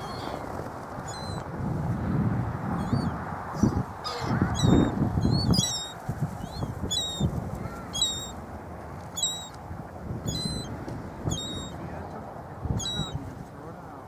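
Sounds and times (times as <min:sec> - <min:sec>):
seagulls calling: 0:00.0 - 0:01.5, 0:02.7 - 0:08.4, 0:09.1 - 0:11.9, 0:12.6 - 0:13.2.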